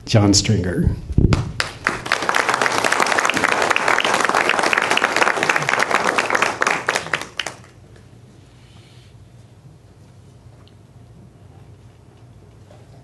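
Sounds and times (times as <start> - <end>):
congregation applauding: 1.5 - 7.8.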